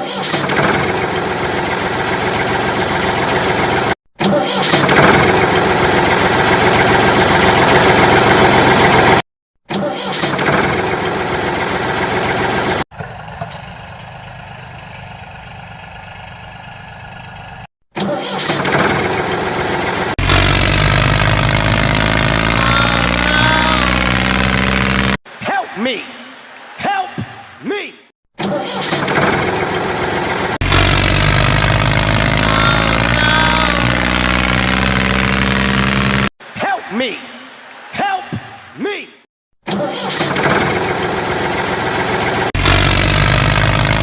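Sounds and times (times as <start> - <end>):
tractor engine idling: 0.9 - 3.9, 5.2 - 9.2, 10.7 - 17.7, 19.1 - 25.2, 29.4 - 36.3, 40.9 - 44.0.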